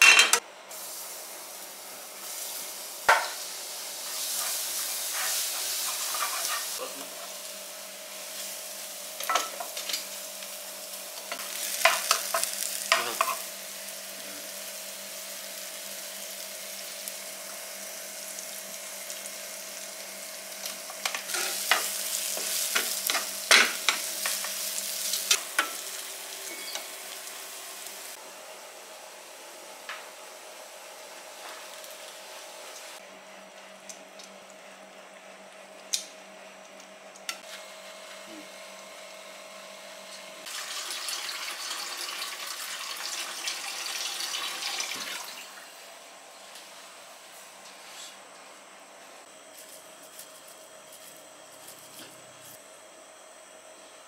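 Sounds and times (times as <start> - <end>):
mushrooms sizzling in a frying pan: 0.3 - 33.0, 39.8 - 47.0.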